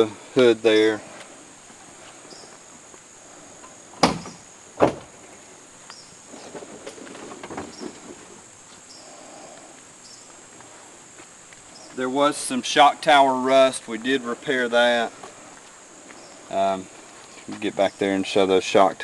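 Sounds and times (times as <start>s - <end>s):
crickets chirring: 0.0s - 19.0s
sharp knocks: 4.0s - 5.1s.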